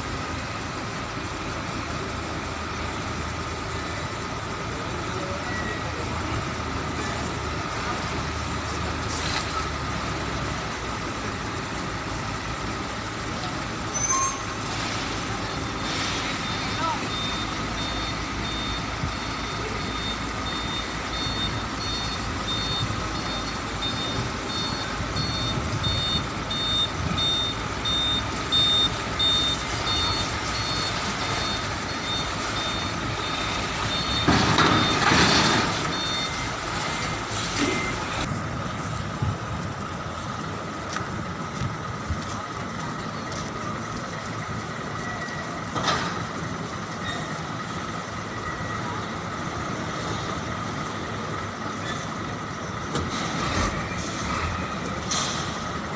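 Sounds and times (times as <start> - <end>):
diesel truck engine running: 0.0 - 55.9
truck reversing alarm beeping: 3.7 - 6.6, 13.8 - 14.7, 15.3 - 38.3.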